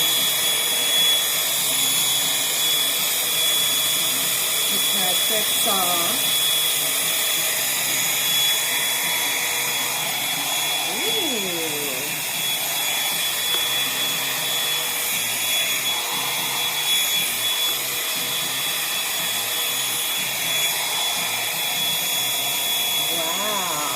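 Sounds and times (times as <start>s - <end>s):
hot air brush whirring: 0.0s - 23.9s.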